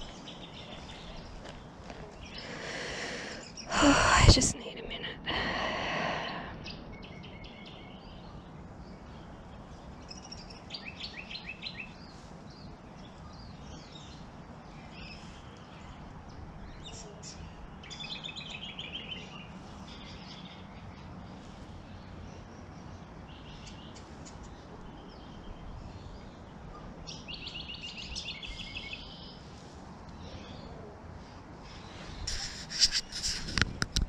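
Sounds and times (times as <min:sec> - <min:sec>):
small birds chirping: 0:00.0 - 0:34.0
steady background hiss: 0:00.0 - 0:34.0
short breathy sound: 0:02.4 - 0:04.5.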